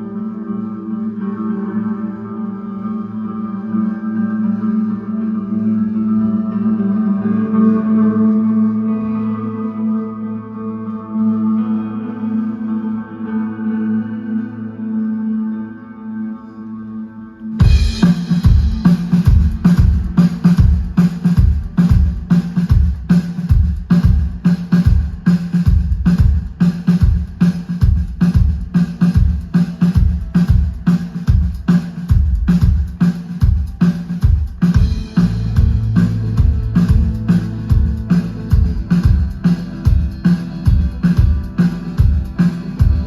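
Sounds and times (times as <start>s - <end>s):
bass line: 17.6s - 43.0s
drum kit beat: 17.6s - 43.0s
live band playing: 17.6s - 43.0s.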